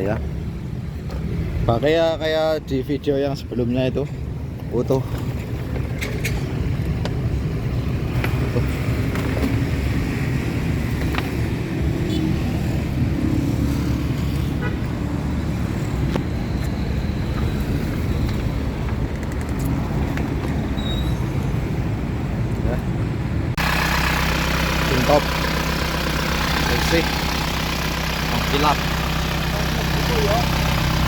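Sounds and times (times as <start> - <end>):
diesel engine idling: 23.5 - 31.0.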